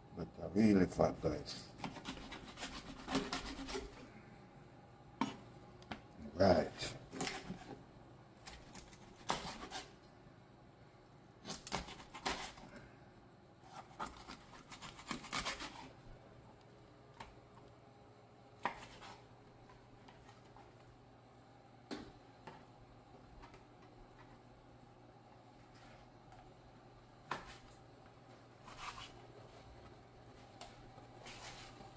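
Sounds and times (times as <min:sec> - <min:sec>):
scraping on cutting board: 0:01.8 - 0:04.0, 0:09.2 - 0:09.9, 0:28.6 - 0:29.2, 0:31.2 - 0:31.8.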